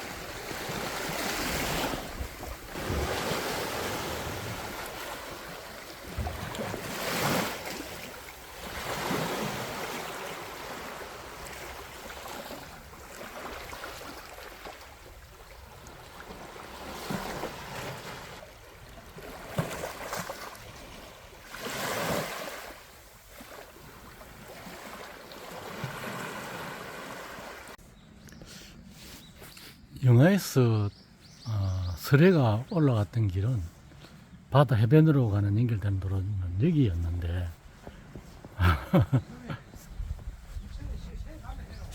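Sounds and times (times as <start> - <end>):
waves breaking on beach: 0.0 - 27.8.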